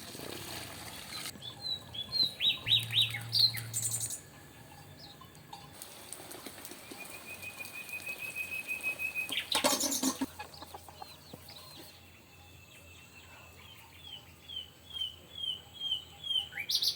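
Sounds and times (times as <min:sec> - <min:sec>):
bird down-slurred whistled notes: 0:01.4 - 0:05.2, 0:06.7 - 0:10.1, 0:11.5 - 0:16.9.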